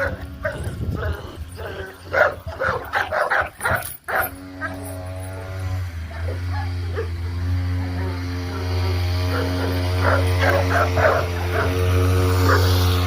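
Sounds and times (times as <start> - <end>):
puppies yapping: 0.0 - 13.0.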